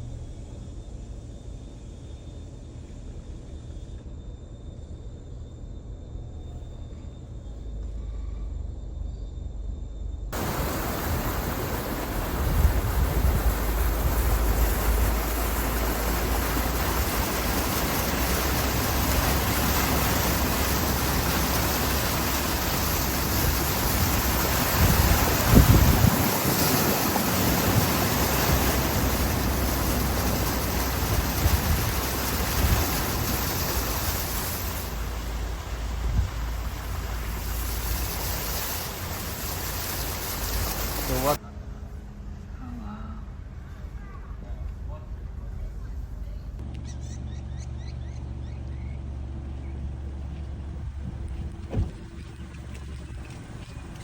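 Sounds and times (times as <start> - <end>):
car road rumble: 10.3 - 41.4, 43.1 - 54.0
loud steady rushing noise: 10.4 - 41.4
brief low thump: 51.6 - 52.0.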